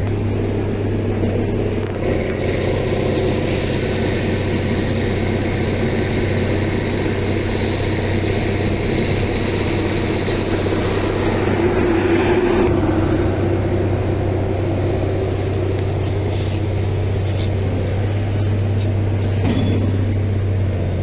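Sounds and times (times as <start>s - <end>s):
engine drone: 0.0s - 21.0s.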